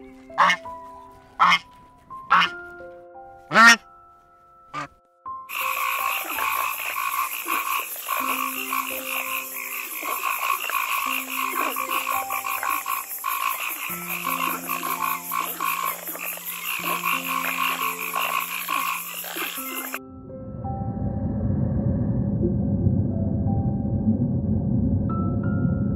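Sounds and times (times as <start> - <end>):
frogs trilling in chorus: 0.4 - 0.6, 1.4 - 1.6, 2.3 - 2.5, 3.5 - 3.8, 5.5 - 20.0
long low steady notes: 5.6 - 25.9.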